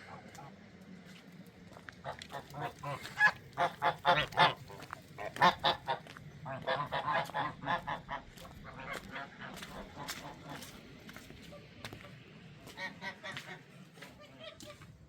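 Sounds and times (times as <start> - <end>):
farm birds calling: 0.0 - 15.0.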